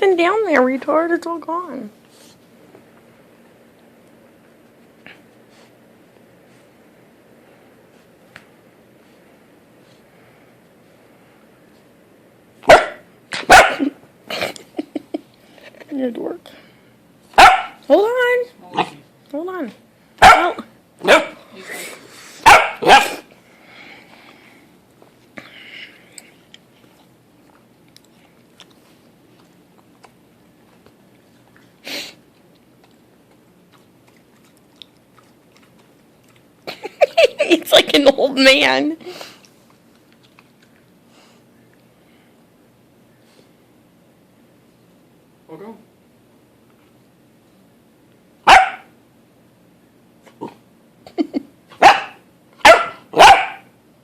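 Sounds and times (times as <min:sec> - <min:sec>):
dog barking: 0:12.6 - 0:13.9, 0:17.4 - 0:17.8, 0:20.2 - 0:21.4, 0:22.4 - 0:23.2, 0:48.4 - 0:48.9, 0:51.8 - 0:53.7
dog chewing and licking: 0:26.5 - 0:36.9, 0:39.4 - 0:41.0.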